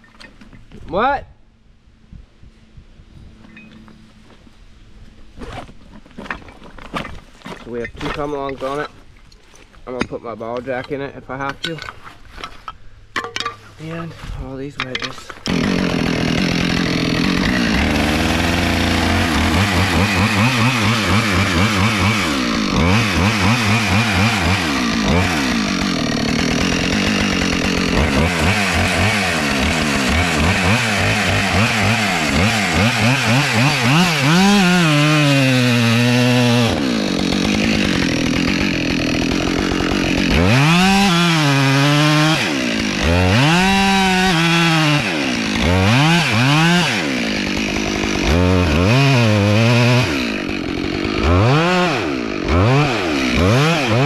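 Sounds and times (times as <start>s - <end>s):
chainsaw cutting wood: 15.3s - 54.0s.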